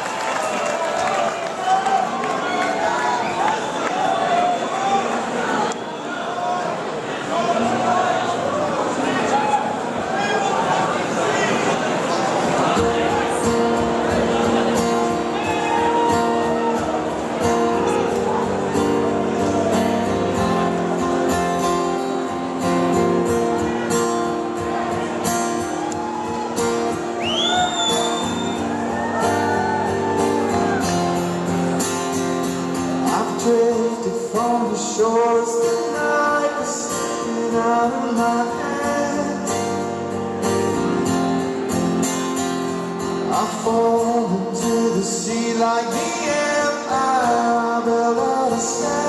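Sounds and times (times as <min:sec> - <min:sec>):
guitar: 0:06.7 - 0:49.0
rising whistle: 0:27.2 - 0:28.7
man singing: 0:33.0 - 0:40.0, 0:43.2 - 0:49.0.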